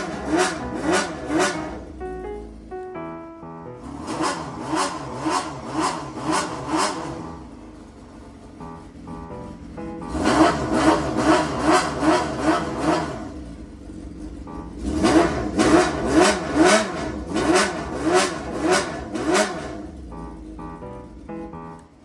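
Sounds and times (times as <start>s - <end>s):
motorcycle engine revving blips: 4.0s - 7.9s, 14.2s - 20.9s.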